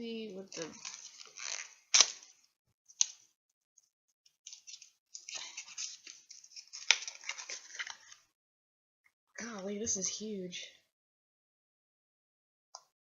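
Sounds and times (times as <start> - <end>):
packaging crinkling and rustling: 0.5 - 2.4, 4.5 - 8.2.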